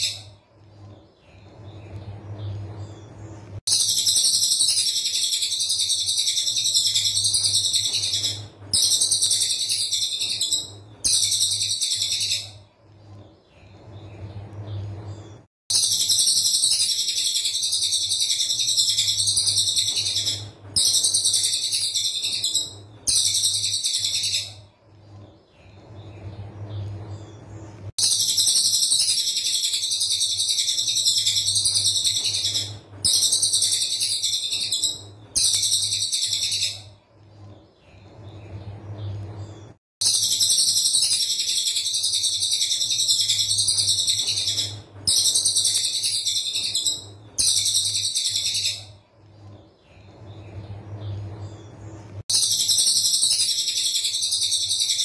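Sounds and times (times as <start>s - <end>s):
faint low hum: 0.0s - 55.0s
bird rattling song: 3.7s - 12.6s, 15.7s - 24.6s, 28.0s - 36.9s, 40.0s - 48.9s, 52.3s - 55.0s.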